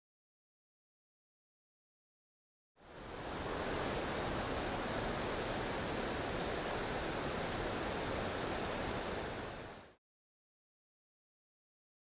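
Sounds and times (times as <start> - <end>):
river water rushing over falls: 2.9 - 9.9.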